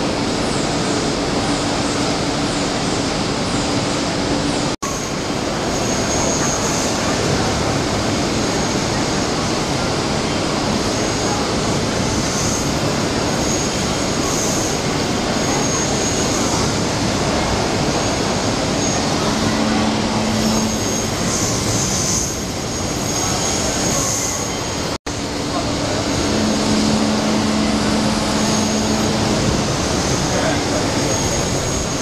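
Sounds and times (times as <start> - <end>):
faint high whine: 12.1 - 32.0
cnc machine running: 13.6 - 23.6, 24.5 - 32.0.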